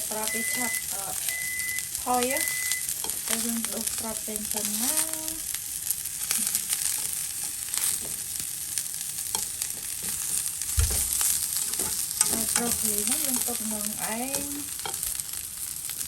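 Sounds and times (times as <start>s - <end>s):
vegetables sizzling in oil: 0.0s - 16.0s
low thump: 10.7s - 11.1s.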